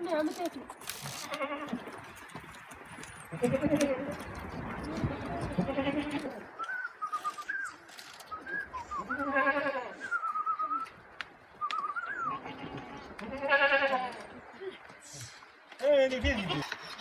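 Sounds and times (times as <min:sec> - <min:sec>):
livestock bleating: 0:01.2 - 0:01.8, 0:05.4 - 0:06.4, 0:09.1 - 0:10.1, 0:12.2 - 0:14.3.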